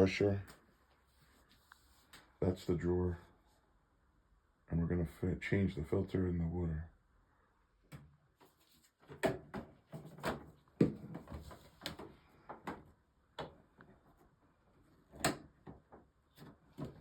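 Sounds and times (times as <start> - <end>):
plastic parts clicking and knocking: 9.1 - 14.2.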